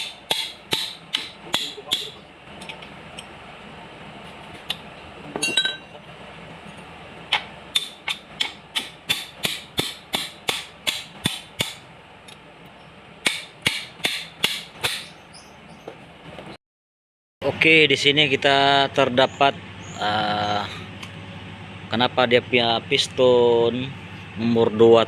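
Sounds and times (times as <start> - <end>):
hammer strikes: 0.0 - 2.8, 7.3 - 11.8, 13.2 - 15.1.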